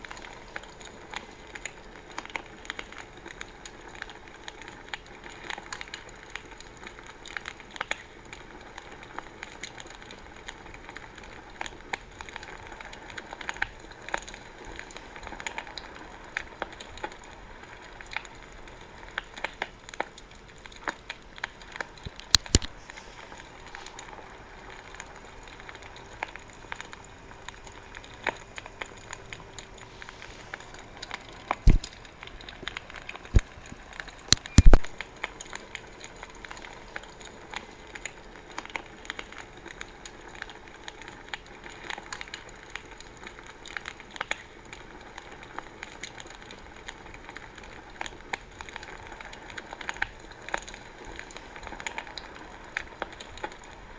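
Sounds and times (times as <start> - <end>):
wood fire crackling: 0.0 - 53.9
sharp pops and snaps: 17.8 - 53.7.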